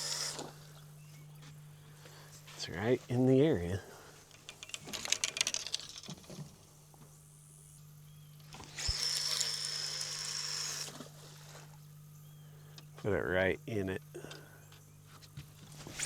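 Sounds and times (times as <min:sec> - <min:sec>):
fishing reel whirring: 0:00.0 - 0:00.6, 0:04.3 - 0:06.4, 0:08.5 - 0:11.2.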